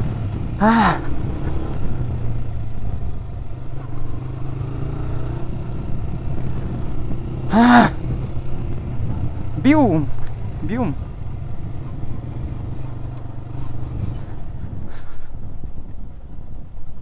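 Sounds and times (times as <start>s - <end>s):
motorcycle engine running: 0.0s - 17.0s
short voice-like sound: 0.6s - 1.1s, 7.5s - 8.0s.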